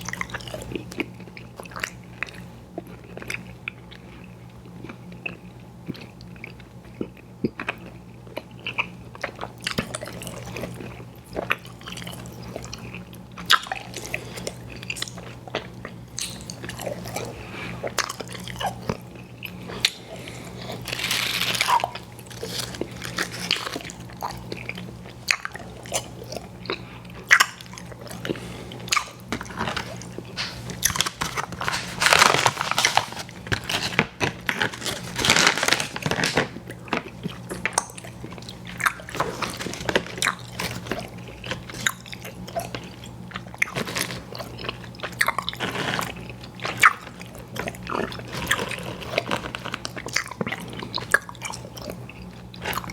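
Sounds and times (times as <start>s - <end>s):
chewing with wet mouth clicks: 36.7s - 52.9s.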